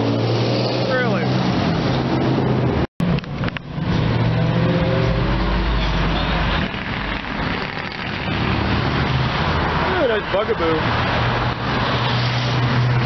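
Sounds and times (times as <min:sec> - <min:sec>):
cars driving past: 0:00.0 - 0:13.0.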